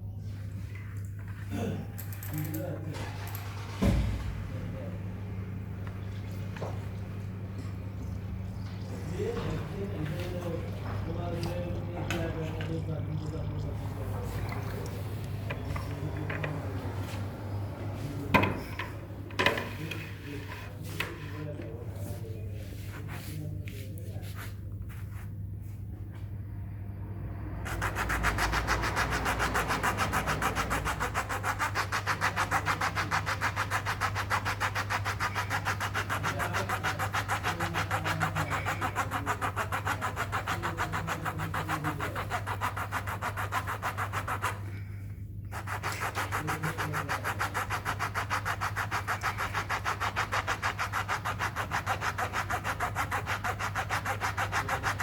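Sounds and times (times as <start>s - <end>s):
low hum: 25.6s - 30.2s
rasping scraping strokes: 27.6s - 55.0s.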